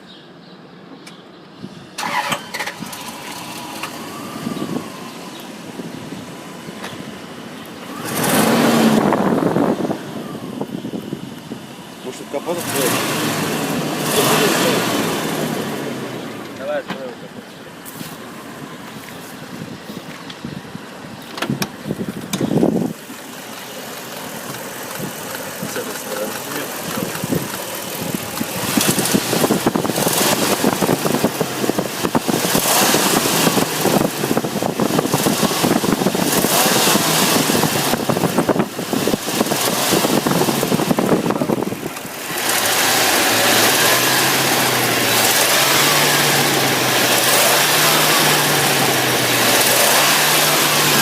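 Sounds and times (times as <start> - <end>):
engine with ticking crackle: 2.0 - 4.2, 21.2 - 51.0.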